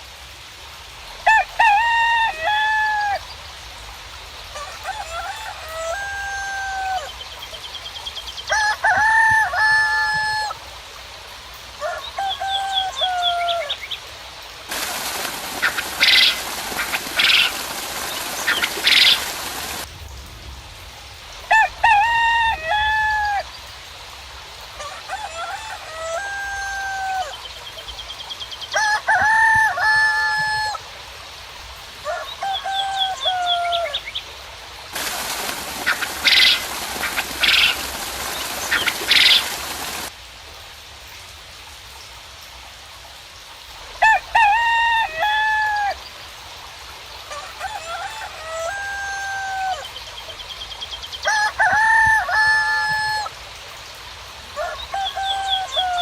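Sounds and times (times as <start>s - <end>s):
rain hiss: 0.0s - 56.0s
roosters crowing: 1.2s - 3.2s, 4.5s - 7.2s, 8.5s - 10.6s, 11.8s - 13.8s, 14.7s - 19.9s, 21.5s - 23.5s, 24.8s - 27.5s, 28.7s - 30.8s, 32.0s - 34.1s, 34.9s - 40.1s, 44.0s - 46.0s, 47.3s - 50.0s, 51.2s - 53.3s, 54.6s - 56.0s
small birds chirping: 14.7s - 20.4s, 35.0s - 40.1s.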